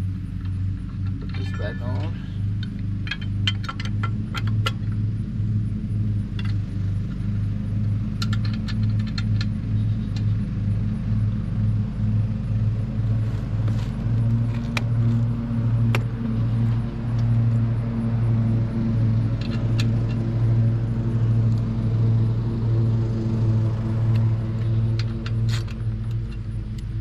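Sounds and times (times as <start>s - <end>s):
small engine idling: 0.0s - 27.0s
metal tools clinking: 1.2s - 2.3s.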